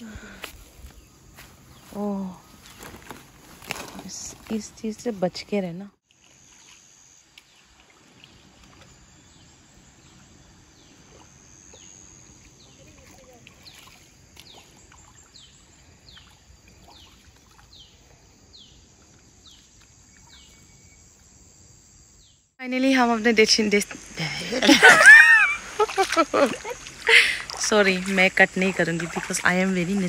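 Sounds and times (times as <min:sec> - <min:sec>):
faint outdoor background noise: 0:00.0 - 0:30.0
high insect drone: 0:06.1 - 0:30.0.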